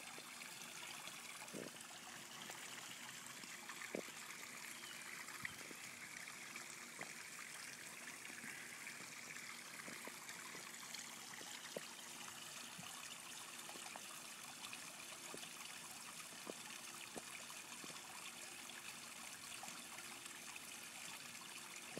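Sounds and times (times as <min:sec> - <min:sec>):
small water splashes: 0:00.0 - 0:21.9
water trickling: 0:00.0 - 0:21.9.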